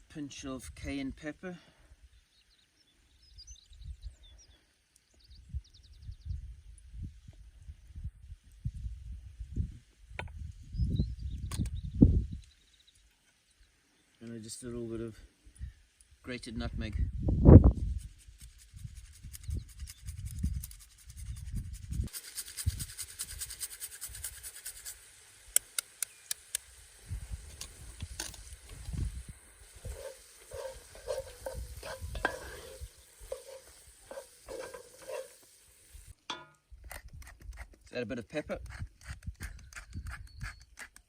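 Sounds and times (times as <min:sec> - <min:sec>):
sizzling hiss with sharp clicks: 0:04.5 - 0:05.4, 0:11.3 - 0:16.9, 0:22.0 - 0:38.0
spoon stirring in a pan: 0:27.5 - 0:36.2.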